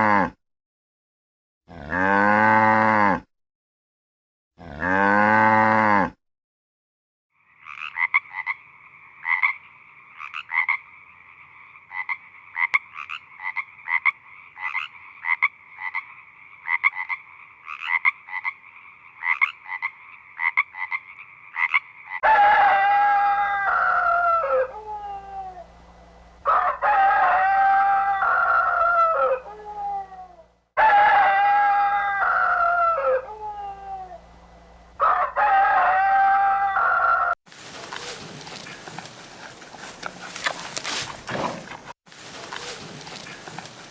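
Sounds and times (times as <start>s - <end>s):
cow mooing: 0.0s - 0.4s, 1.7s - 3.3s, 4.6s - 6.2s
frog croaking: 7.4s - 22.3s
rooster crowing: 22.2s - 25.8s, 26.4s - 34.3s, 35.0s - 37.4s.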